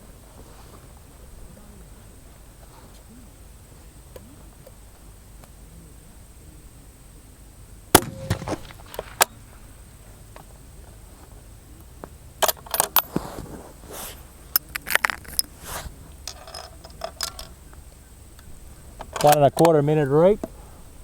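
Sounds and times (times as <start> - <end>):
metallic clicks and rattles: 16.2 - 17.6.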